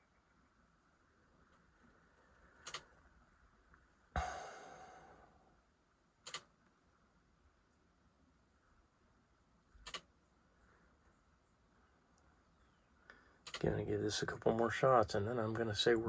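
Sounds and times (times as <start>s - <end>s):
sharp double clicks: 2.6s - 2.9s, 6.2s - 6.5s, 9.8s - 10.1s, 13.4s - 13.6s.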